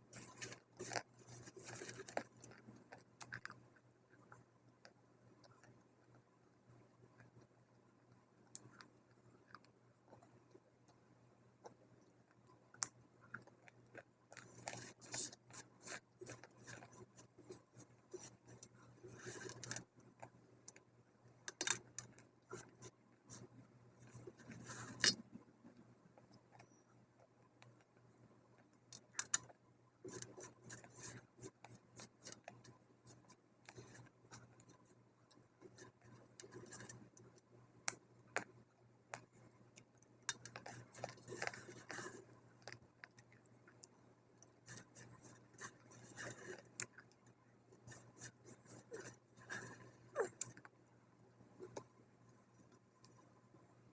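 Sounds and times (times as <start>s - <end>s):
crunchy clay being chewed: 0.0s - 4.4s, 12.8s - 25.2s, 28.6s - 50.8s
faint steady hum: 0.0s - 53.9s.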